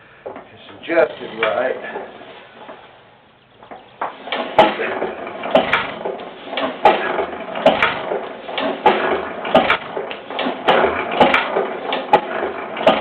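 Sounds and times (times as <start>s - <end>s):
mechanical clatter: 3.6s - 13.0s
engine knocking: 4.6s - 13.0s.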